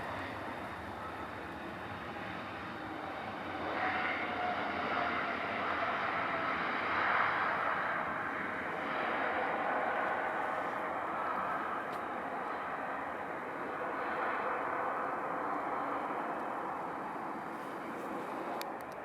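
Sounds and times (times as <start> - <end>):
jet engines rushing: 0.0 - 19.0.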